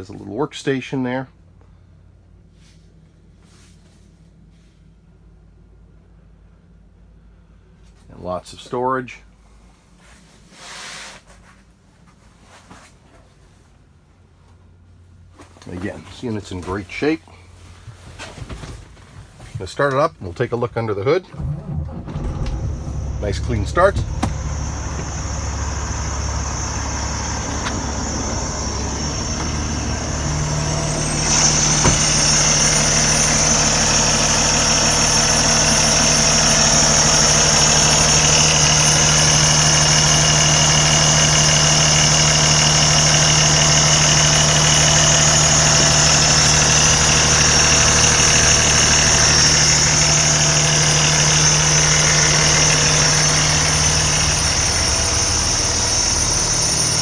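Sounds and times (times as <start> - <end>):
diesel truck engine idling: 20.0 - 57.0.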